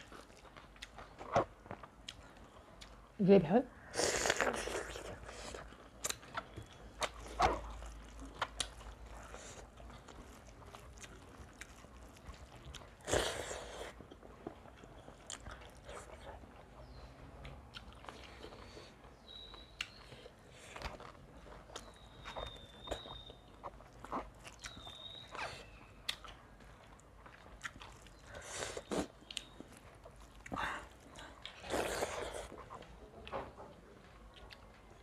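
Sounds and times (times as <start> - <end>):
people chewing food: 0.0 - 35.0.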